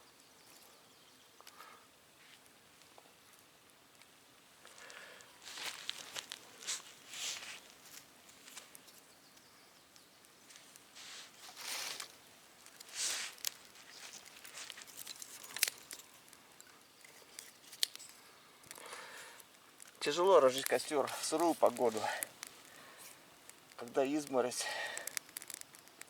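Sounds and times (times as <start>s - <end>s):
rustling and crunching of dry kindling: 4.0s - 26.0s
sharp snaps: 17.4s - 26.0s.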